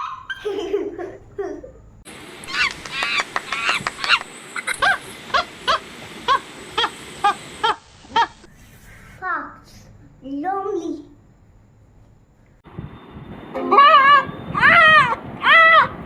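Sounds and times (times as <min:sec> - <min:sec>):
monkey calls: 0:00.0 - 0:01.5, 0:02.4 - 0:08.5, 0:13.8 - 0:16.0.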